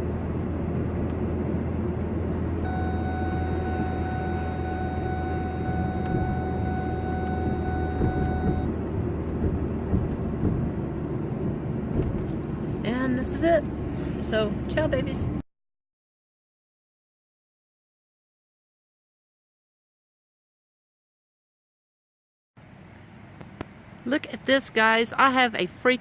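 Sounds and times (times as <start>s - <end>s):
truck engine low rumble: 0.0s - 15.4s
electronic warning tone: 2.6s - 8.7s.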